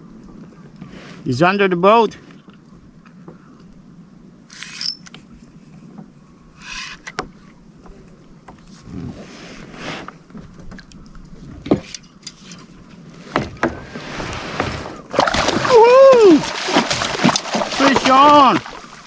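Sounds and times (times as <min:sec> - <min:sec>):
clicks and knocks against kayak hull: 0:06.9 - 0:08.7, 0:10.3 - 0:12.7.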